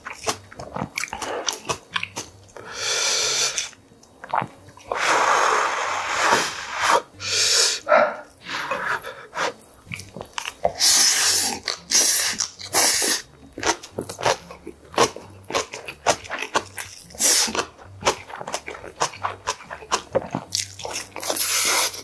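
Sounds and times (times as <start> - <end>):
chewing clicks and smacks: 0.0 - 2.6, 9.8 - 10.8, 11.5 - 12.7, 13.5 - 21.6
wet crunching while chewing: 0.0 - 2.6, 3.6 - 5.0, 9.4 - 22.0.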